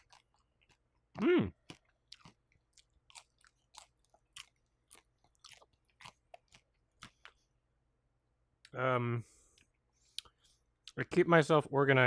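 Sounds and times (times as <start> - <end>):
crunchy chewing: 0.0 - 7.5.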